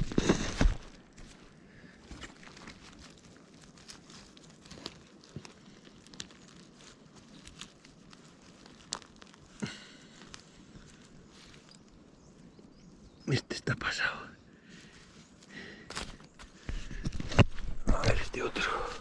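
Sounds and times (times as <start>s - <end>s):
footsteps through wet leaves: 0.0s - 12.3s, 14.8s - 16.7s
sharp clicks and crackles: 2.1s - 11.9s.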